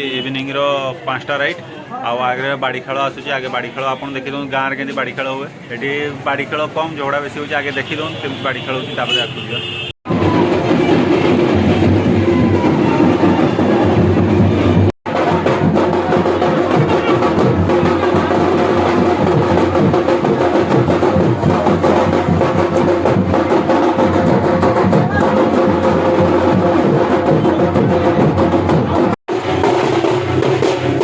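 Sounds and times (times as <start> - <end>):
percussion music with drums: 10.0 - 31.0.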